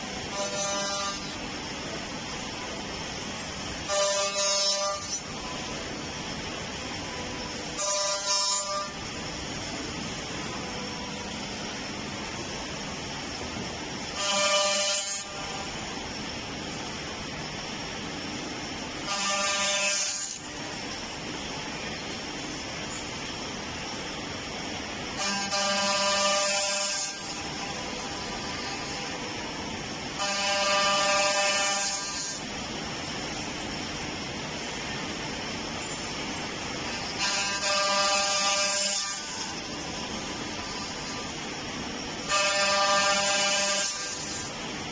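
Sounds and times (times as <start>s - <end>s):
loud whine with hiss: 0.0s - 44.9s
machine humming: 0.0s - 44.9s
woodworking machine running: 24.6s - 44.9s.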